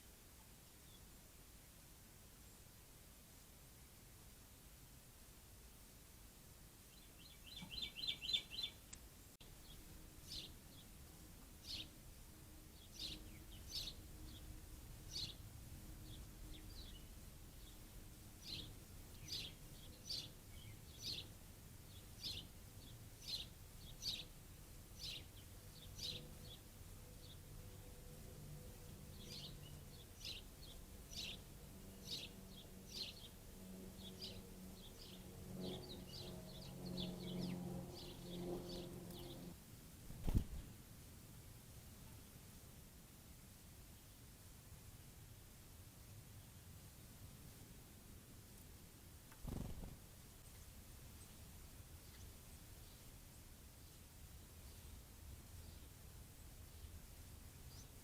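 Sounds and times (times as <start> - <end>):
faint outdoor background noise: 0.0 - 58.0
songbird trilling and chipping: 6.9 - 9.0.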